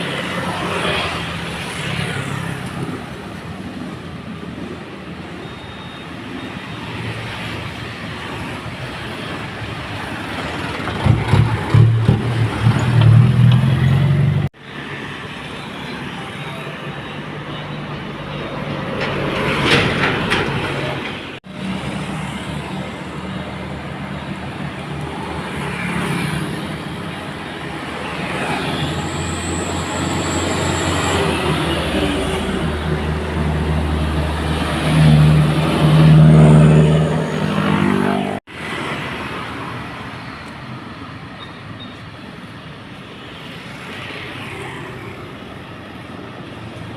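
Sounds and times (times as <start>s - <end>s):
diesel truck engines under load: 0.0s - 15.6s, 16.4s - 25.7s
road and tyre noise: 0.0s - 46.9s.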